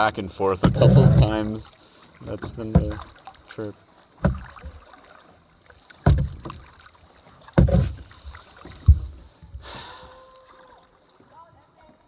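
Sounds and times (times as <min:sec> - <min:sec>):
faint water noise: 0:00.0 - 0:12.0
heavy low paddle thuds: 0:00.4 - 0:03.2, 0:04.2 - 0:04.8, 0:06.0 - 0:06.7, 0:07.5 - 0:09.2.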